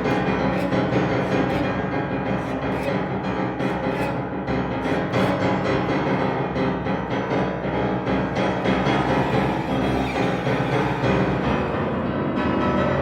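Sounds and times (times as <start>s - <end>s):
violin cello and piano trio: 0.0s - 13.0s.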